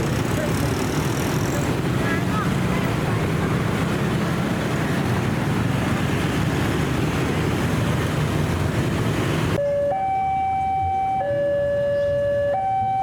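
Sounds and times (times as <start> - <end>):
electronic alarm tone: 9.6 - 13.0.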